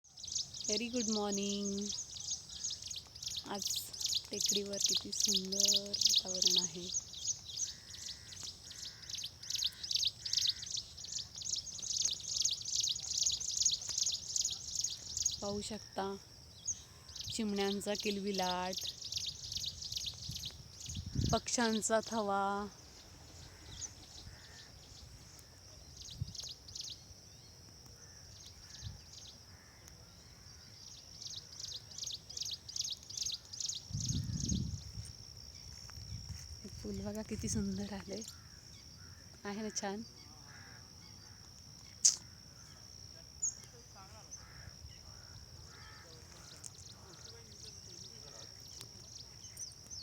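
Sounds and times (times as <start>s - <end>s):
small birds chirping: 0.0s - 50.0s
low buzzy bird calls: 0.1s - 35.7s.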